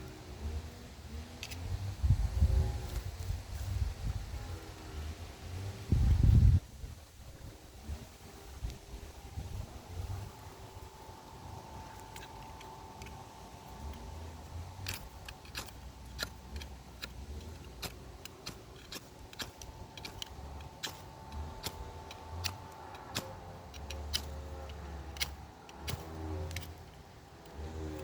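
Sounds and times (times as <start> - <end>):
knife scraping ferrocerium rod: 14.8 - 26.9.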